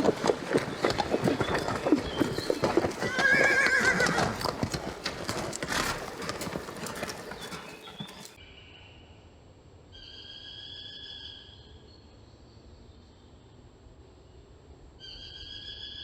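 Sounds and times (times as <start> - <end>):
horse hooves clip-clopping: 0.0 - 8.4
horse whinnying: 0.0 - 8.4.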